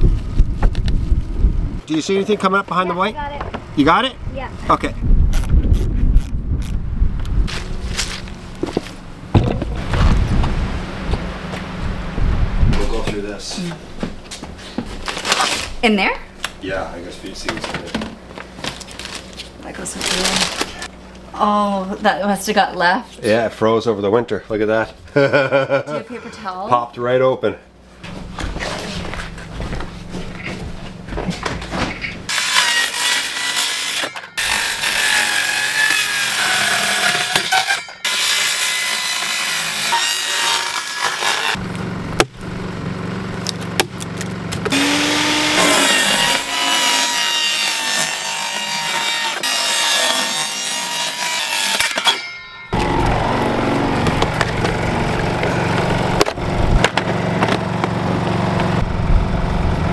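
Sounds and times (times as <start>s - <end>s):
generator engine humming: 7.7s - 15.2s, 27.7s - 32.3s, 41.6s - 46.8s, 52.7s - 59.9s
saw cutting through wood: 32.3s - 41.8s, 44.7s - 58.9s.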